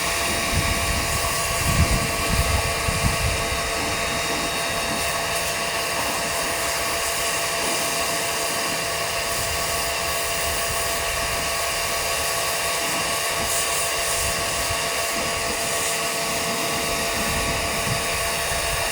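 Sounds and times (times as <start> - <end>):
pressure washer running: 0.0 - 18.9.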